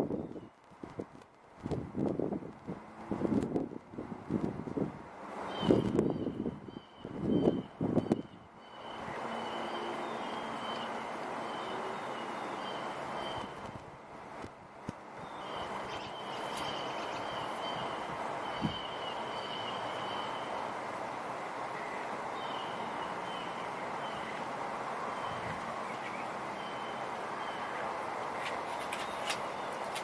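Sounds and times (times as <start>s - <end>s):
bird singing high trills: 5.5s - 13.6s, 15.2s - 20.6s, 21.8s - 24.4s, 25.1s - 27.8s.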